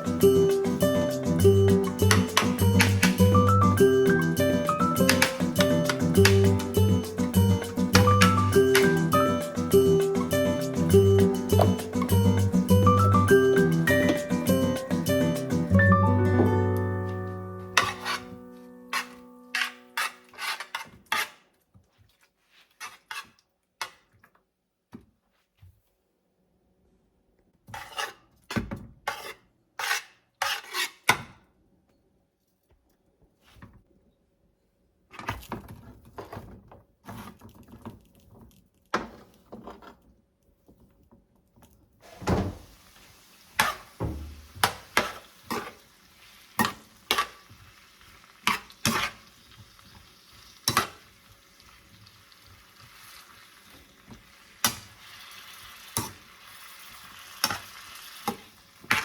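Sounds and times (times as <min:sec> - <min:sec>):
dishes and utensils clinking: 0:00.0 - 0:20.6
food sizzling in a pan: 0:42.0 - 0:59.0.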